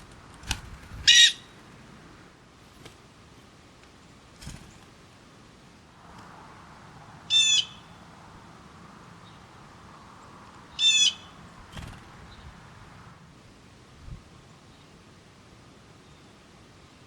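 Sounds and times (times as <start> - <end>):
bird raspy calls: 1.0 - 1.7, 7.2 - 13.2.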